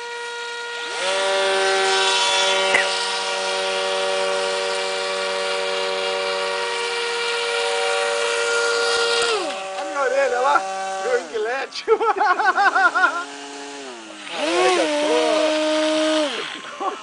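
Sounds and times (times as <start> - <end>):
high-pitched motor whine: 0.0 - 17.0
lower motor whine: 0.0 - 17.0.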